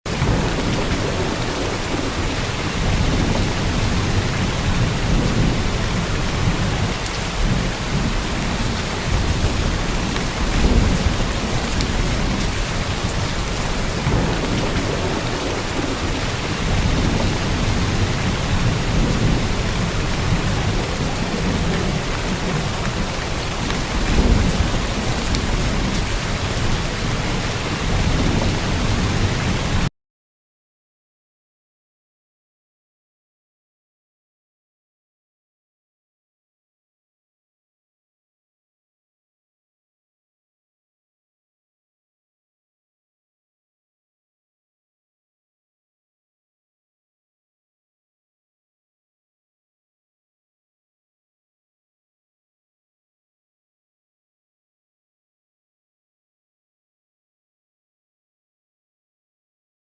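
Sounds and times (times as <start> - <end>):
heavy rain falling: 0.1 - 29.9
thunder rumbling: 0.1 - 29.9.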